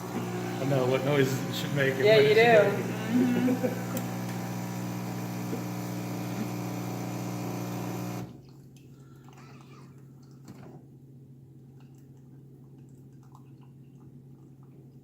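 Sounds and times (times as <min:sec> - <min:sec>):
coffee machine pump humming: 0:00.0 - 0:08.4
faint water drips: 0:08.4 - 0:10.6, 0:11.6 - 0:15.0.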